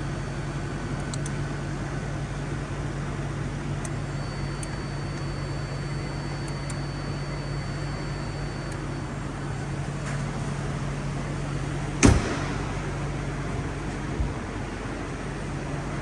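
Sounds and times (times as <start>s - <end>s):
car engine idling: 0.0s - 16.0s
light thump: 12.0s - 12.9s
sharp bang: 12.0s - 13.1s.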